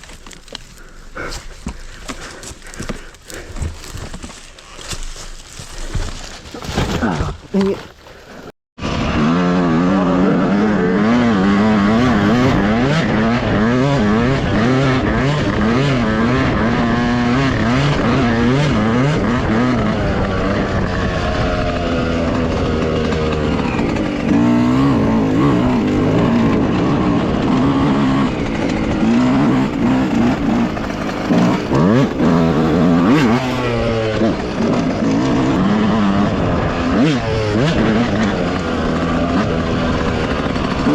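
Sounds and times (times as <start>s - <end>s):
dirt bike engine revving: 8.8s - 40.9s.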